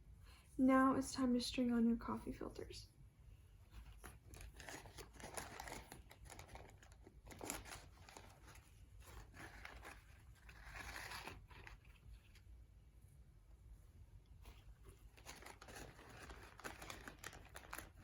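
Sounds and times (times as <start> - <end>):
paper filters rustling and crinkling: 3.6 - 12.5, 14.4 - 18.0.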